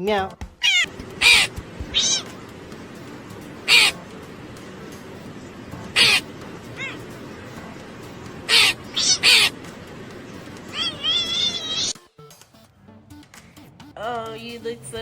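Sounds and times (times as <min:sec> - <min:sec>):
animal short calls: 0:00.6 - 0:02.4, 0:03.6 - 0:04.0, 0:05.9 - 0:07.0, 0:08.5 - 0:09.6, 0:10.7 - 0:12.0.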